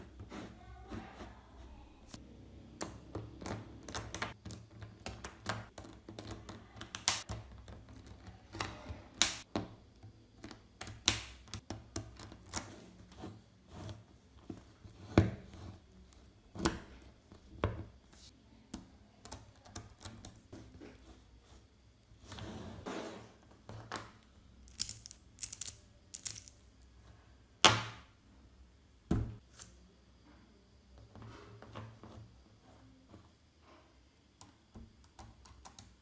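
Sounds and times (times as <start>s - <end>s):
magnetic steel balls clicking: 24.7s - 26.6s.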